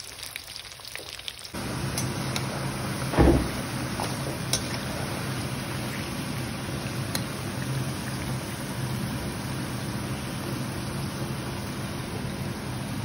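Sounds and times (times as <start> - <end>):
potatoes deep-frying in oil: 0.0 - 13.0
brief thump: 3.1 - 3.6.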